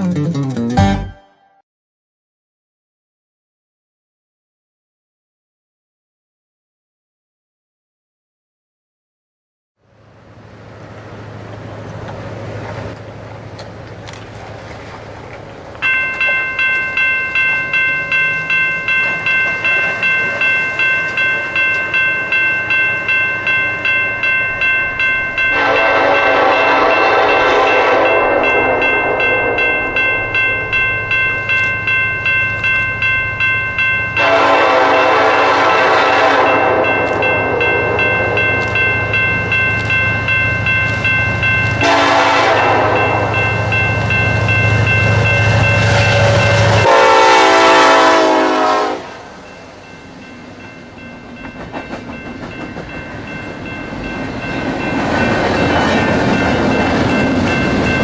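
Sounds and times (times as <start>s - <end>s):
train running rumble: 9.9s - 58.0s
locomotive horn blasts: 25.4s - 29.8s, 34.2s - 38.7s, 41.8s - 43.5s, 45.8s - 49.4s.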